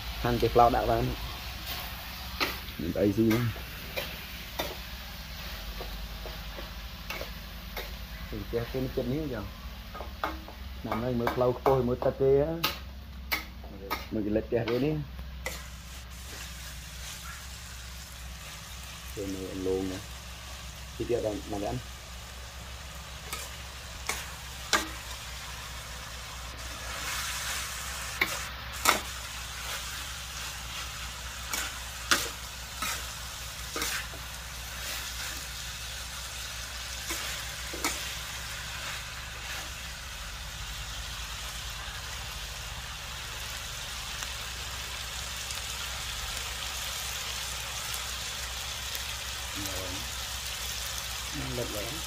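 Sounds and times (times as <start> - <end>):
eel sizzling in a wok: 0.0 - 52.0
metal spatula knocking a wok: 9.9 - 14.1.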